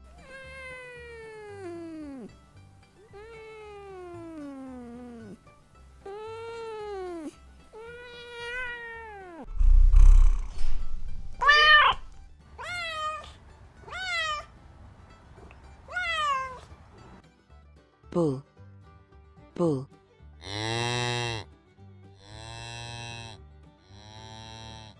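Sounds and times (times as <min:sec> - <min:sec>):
cat meowing: 0:00.2 - 0:02.3, 0:03.0 - 0:05.4, 0:06.0 - 0:09.5, 0:11.3 - 0:14.5, 0:15.9 - 0:16.7
low thump: 0:09.5 - 0:11.4.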